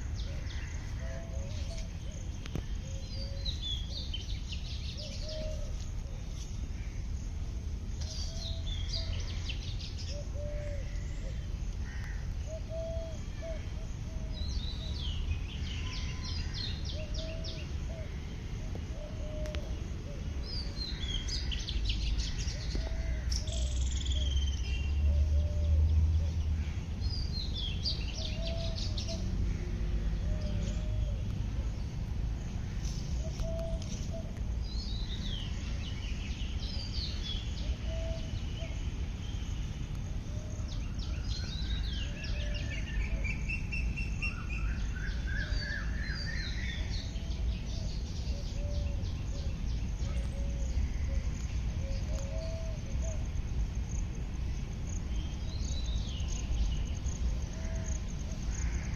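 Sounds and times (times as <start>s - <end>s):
birds chirping and trilling: 0.0s - 58.9s.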